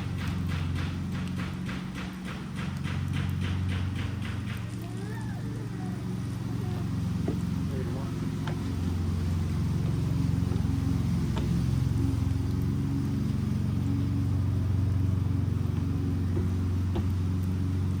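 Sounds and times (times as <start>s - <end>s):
wood fire popping: 0.0s - 8.8s
engine humming: 0.0s - 18.0s.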